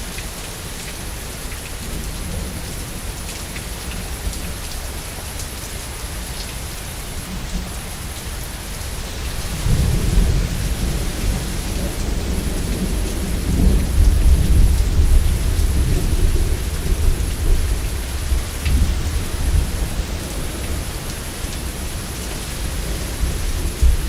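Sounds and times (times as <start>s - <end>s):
heavy rain: 0.0s - 24.0s
rolling thunder: 9.4s - 20.9s.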